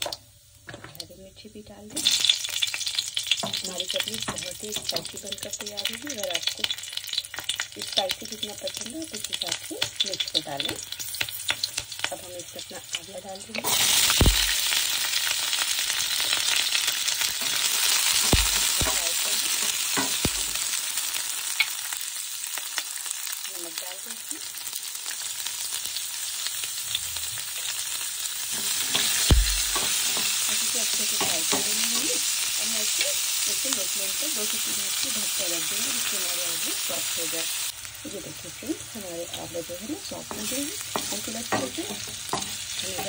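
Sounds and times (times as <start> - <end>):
food sizzling in hot oil: 0.0 - 43.0.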